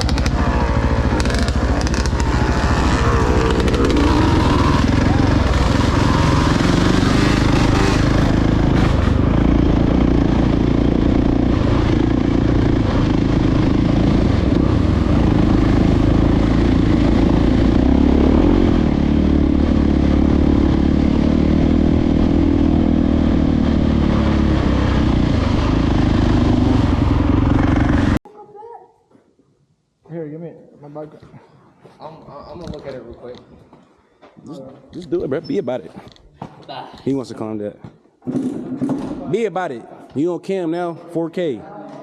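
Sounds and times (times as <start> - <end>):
dirt bike engine revving: 0.0 - 28.2.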